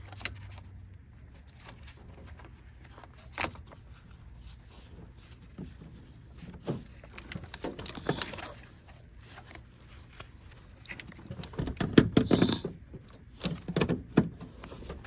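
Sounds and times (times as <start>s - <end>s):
clicks and knocks of parts handled: 4.7s - 15.0s.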